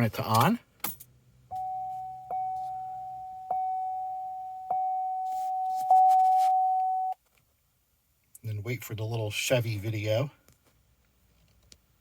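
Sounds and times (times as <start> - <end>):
dashboard warning chime: 1.5 - 7.2.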